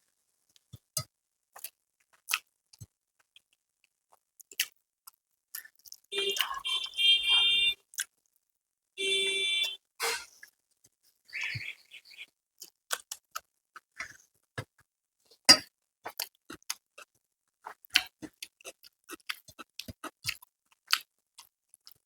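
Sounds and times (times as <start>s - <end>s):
chewing mouth clicks and smacks: 1.6s - 6.5s, 12.6s - 14.2s, 16.1s - 22.0s.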